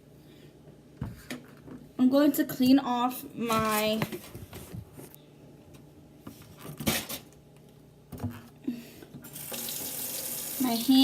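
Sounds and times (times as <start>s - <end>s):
tap water running: 9.2s - 11.0s.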